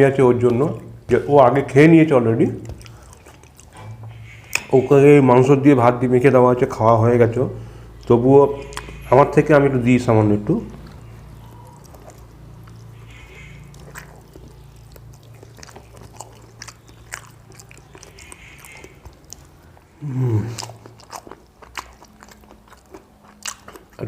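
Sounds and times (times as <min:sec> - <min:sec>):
low steady hum: 0:00.0 - 0:24.0
close chewing and biting: 0:02.4 - 0:05.0, 0:07.9 - 0:09.4, 0:10.4 - 0:24.0.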